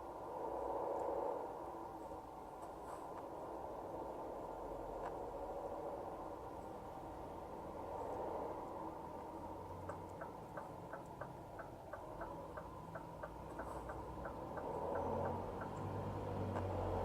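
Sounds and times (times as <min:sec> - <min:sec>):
turn signal ticking: 0:09.7 - 0:17.0.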